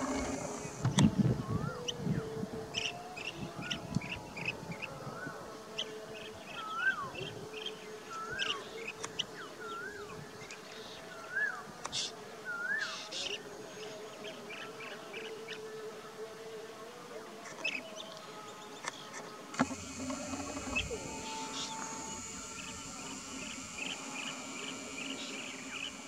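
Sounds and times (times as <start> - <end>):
steady low hum: 0.0 - 1.5, 19.6 - 26.0.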